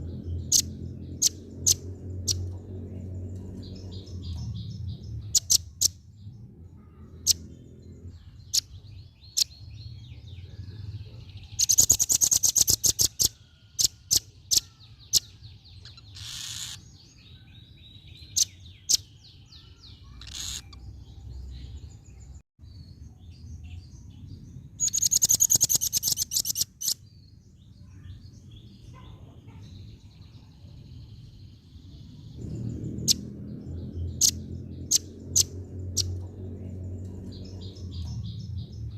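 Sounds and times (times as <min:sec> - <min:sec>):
low background rumble: 0:00.0 - 0:11.5, 0:27.3 - 0:38.9
faint high twittering: 0:00.0 - 0:38.9
bird chattering trills: 0:00.1 - 0:02.5, 0:03.5 - 0:06.0, 0:11.5 - 0:17.0, 0:18.2 - 0:20.9, 0:24.8 - 0:27.0
bird chip calls: 0:11.5 - 0:17.0, 0:18.2 - 0:20.9, 0:24.8 - 0:27.0.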